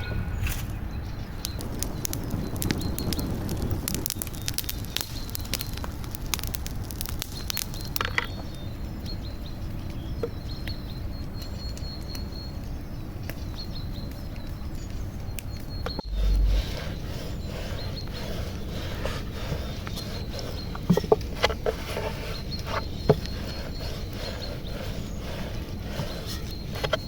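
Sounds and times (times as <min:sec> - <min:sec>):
steady low rumble: 0:00.0 - 0:07.2, 0:15.9 - 0:21.4
campfire crackling and popping: 0:00.5 - 0:27.0.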